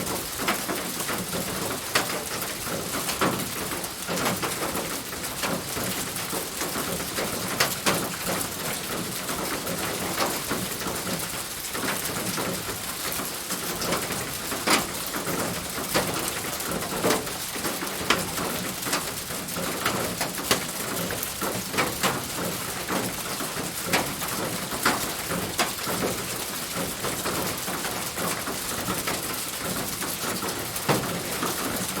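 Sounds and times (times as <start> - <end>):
rain on a roof: 0.0 - 32.0
water drips and taps: 13.2 - 32.0.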